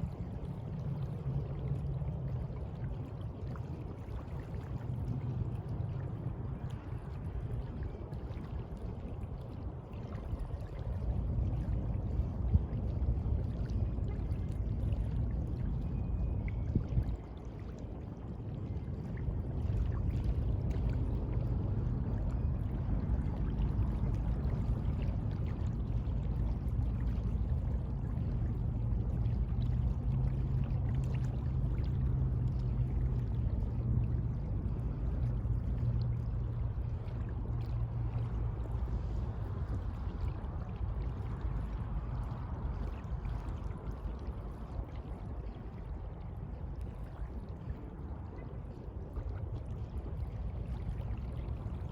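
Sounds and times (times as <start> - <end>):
sea water washing: 17.1 - 51.9
deep rumble: 18.8 - 44.2.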